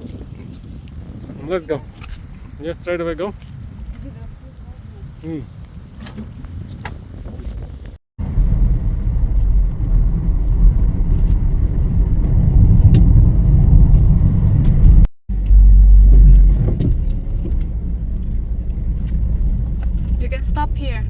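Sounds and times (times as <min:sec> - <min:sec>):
car road and engine rumble: 0:01.4 - 0:21.0.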